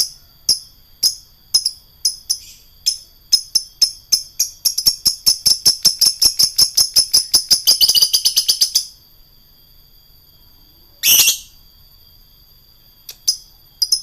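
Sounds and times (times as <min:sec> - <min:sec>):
lovebird chirping chatter: 0:04.2 - 0:08.8, 0:11.0 - 0:11.5.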